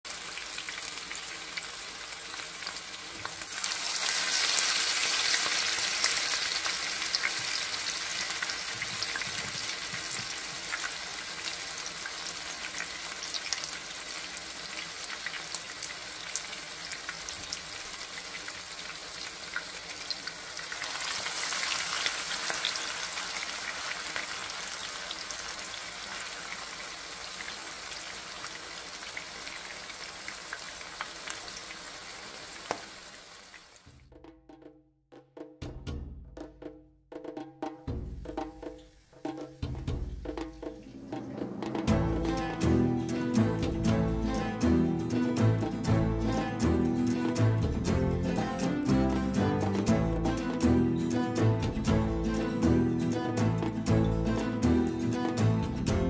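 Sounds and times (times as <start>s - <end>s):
patties sizzling in oil: 0.1s - 33.9s.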